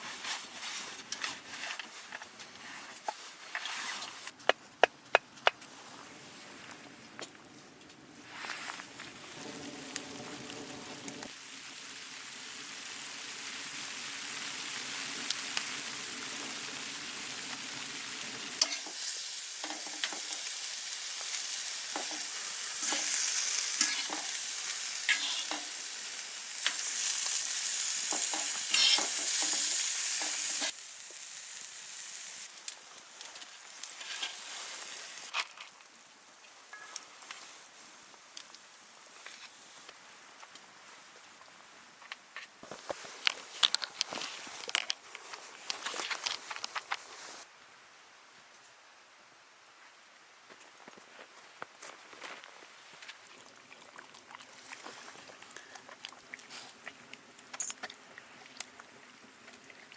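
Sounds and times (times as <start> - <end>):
food sizzling in a pan: 9.2 - 35.3.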